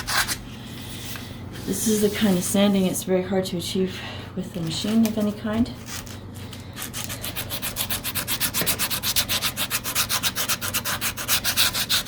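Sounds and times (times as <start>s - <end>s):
sandpaper rubbing on wood: 7.2s - 12.0s.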